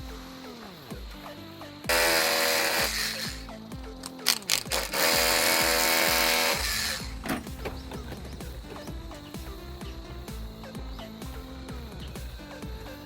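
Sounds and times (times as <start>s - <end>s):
background music: 0.0s - 13.0s
power tool running: 1.9s - 9.6s
sharp knocks: 7.0s - 9.2s.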